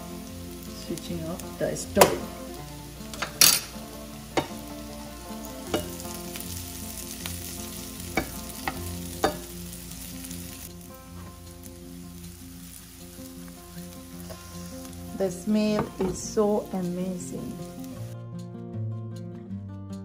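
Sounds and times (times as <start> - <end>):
onions and roe sizzling in pan: 0.0 - 18.2
tongs clicking against pan: 2.0 - 2.3, 3.1 - 4.7, 5.6 - 10.6.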